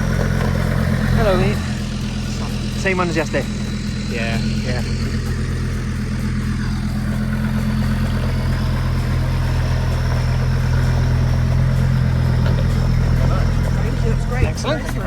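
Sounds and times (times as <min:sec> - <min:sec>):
vehicle engine running steadily: 0:00.0 - 0:15.0.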